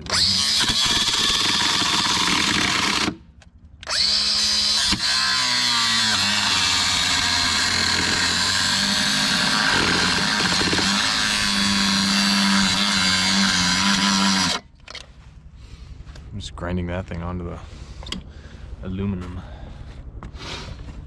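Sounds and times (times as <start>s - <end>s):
power grinder grinding metal: 0.0s - 3.2s, 3.9s - 14.6s.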